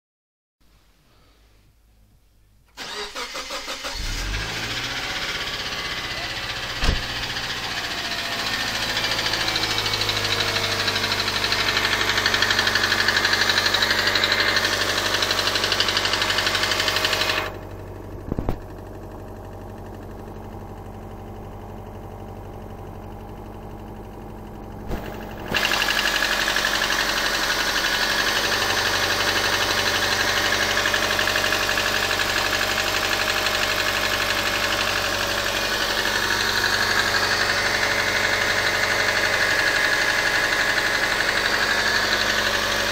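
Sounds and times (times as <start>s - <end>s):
engine running with a knock: 6.0s - 18.8s, 24.8s - 30.2s
short thump: 6.7s - 7.4s, 18.3s - 18.7s, 24.8s - 25.4s.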